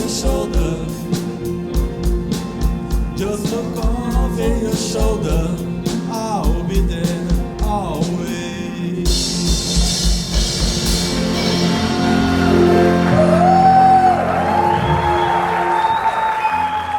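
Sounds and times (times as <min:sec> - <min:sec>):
live rock band playing: 0:00.0 - 0:15.9
drum hits: 0:09.1 - 0:13.6.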